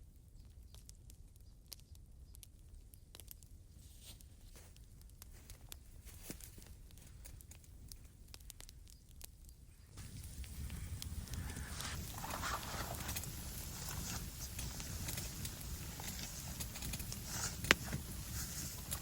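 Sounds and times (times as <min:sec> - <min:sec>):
light clicks and crackles: 0:00.1 - 0:19.0
steady low rumble: 0:09.9 - 0:19.0.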